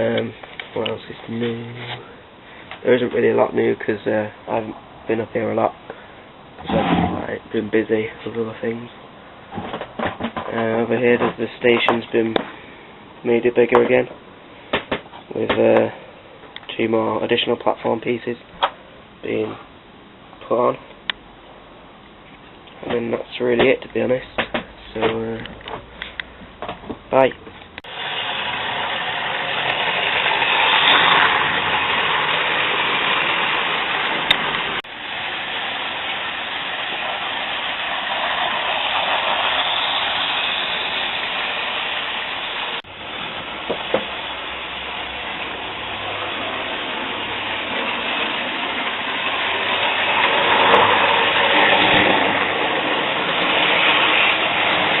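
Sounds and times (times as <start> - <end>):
model train motor whir: 27.9 - 55.0.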